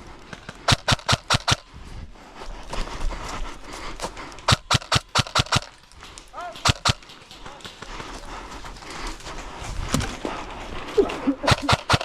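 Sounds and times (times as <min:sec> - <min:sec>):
airsoft gun shots: 0:00.6 - 0:01.7, 0:04.5 - 0:05.8, 0:06.4 - 0:07.7, 0:11.5 - 0:12.0.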